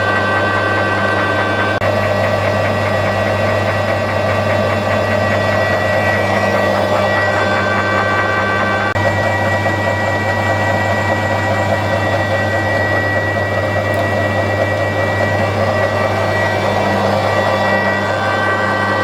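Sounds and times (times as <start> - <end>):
lathe running with high whine: 0.0 - 19.0.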